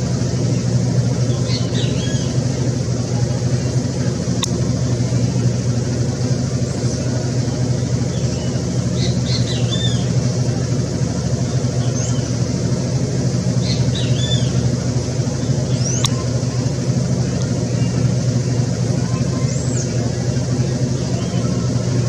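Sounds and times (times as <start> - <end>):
low engine-like drone: 0.0 - 22.0
sharp click: 4.4 - 4.6, 16.0 - 16.2.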